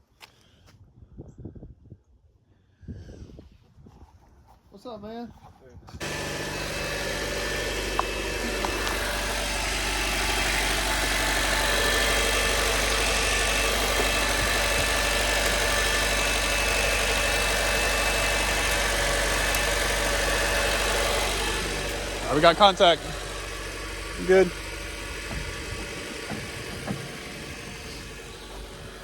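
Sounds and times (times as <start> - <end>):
car engine idling: 6.0 - 29.0.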